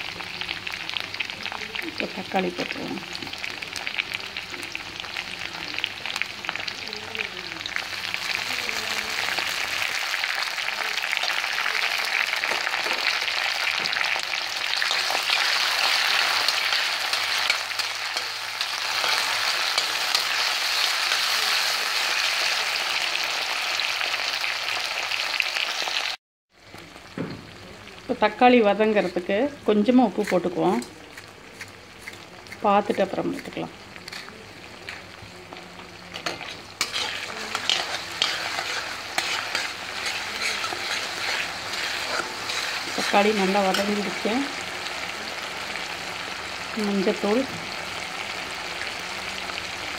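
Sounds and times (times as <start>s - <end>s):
vegetables sizzling in hot oil: 0.0s - 49.9s
metal spatula scraping a pan: 30.0s - 35.1s, 36.1s - 44.2s.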